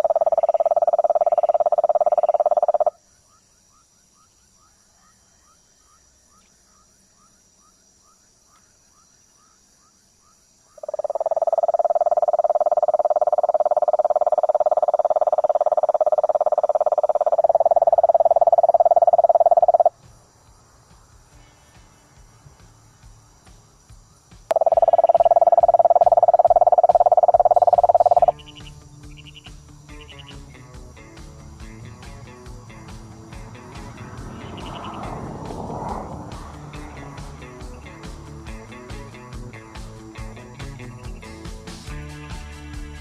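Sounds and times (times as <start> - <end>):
frog trilling: 0.0 - 3.0, 10.7 - 19.9, 24.5 - 30.4, 34.0 - 35.7.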